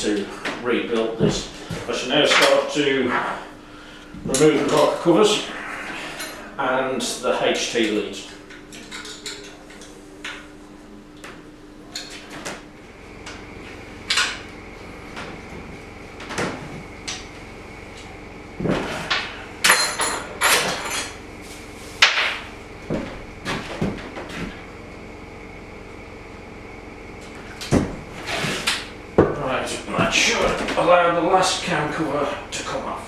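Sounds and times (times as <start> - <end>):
metal tools and parts clinking: 19.7 - 21.2.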